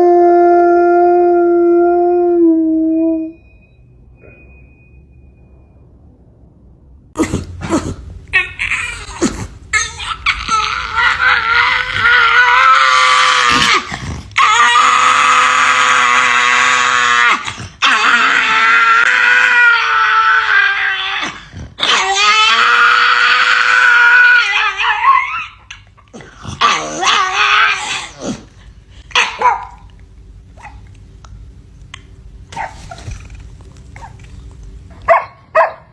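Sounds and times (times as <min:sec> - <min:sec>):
dog howling: 0:00.0 - 0:03.5, 0:08.4 - 0:25.9, 0:26.6 - 0:28.4
dog yelping: 0:08.4 - 0:16.4, 0:19.3 - 0:25.9, 0:29.1 - 0:29.8, 0:32.5 - 0:33.2, 0:35.0 - 0:35.9
dog barking: 0:29.2 - 0:29.8, 0:32.5 - 0:32.9, 0:35.0 - 0:35.9.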